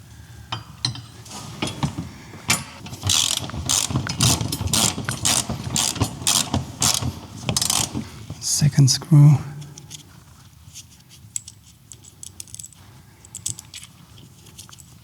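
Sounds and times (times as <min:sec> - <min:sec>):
ratchet wrench clicking: 0:03.1 - 0:07.0, 0:07.6 - 0:08.0.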